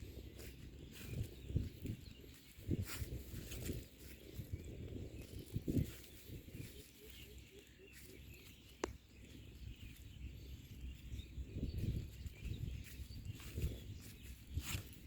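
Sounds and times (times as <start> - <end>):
faint bird calls: 0.0 - 15.0.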